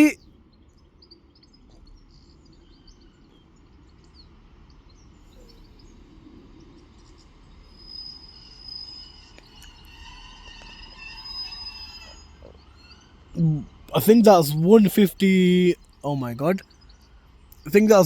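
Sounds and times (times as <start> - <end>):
train brake squeal: 7.8 - 12.4.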